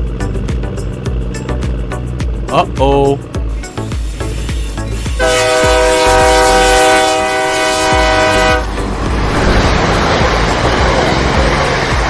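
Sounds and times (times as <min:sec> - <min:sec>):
loud rushing noise: 0:03.7 - 0:12.0
long horn blast: 0:05.1 - 0:09.6.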